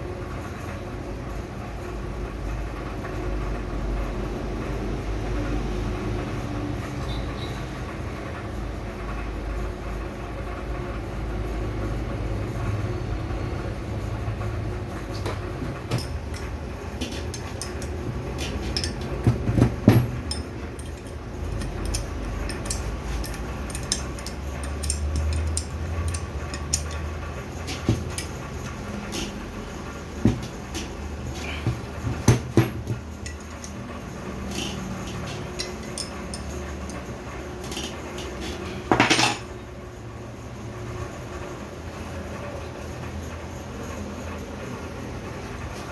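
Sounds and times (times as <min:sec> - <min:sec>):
low machine hum: 0:11.6 - 0:40.7
metal tools clinking on parts: 0:15.9 - 0:39.5.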